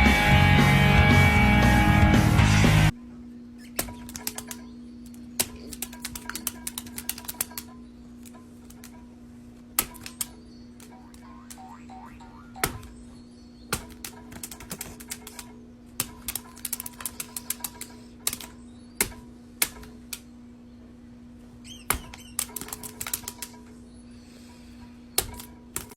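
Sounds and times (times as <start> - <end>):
sharp clicks and taps: 3.8 - 9.0, 9.8 - 12.9, 13.7 - 20.3, 21.9 - 23.6
high squeak: 21.6 - 22.5.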